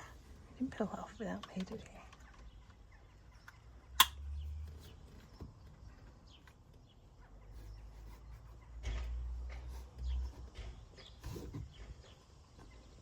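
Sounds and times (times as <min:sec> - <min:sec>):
sharp click: 0:04.0 - 0:04.2.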